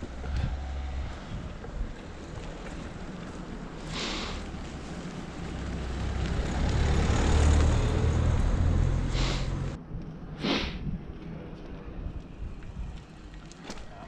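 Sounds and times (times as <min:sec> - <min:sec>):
motor vehicle passing by: 0:00.0 - 0:09.8.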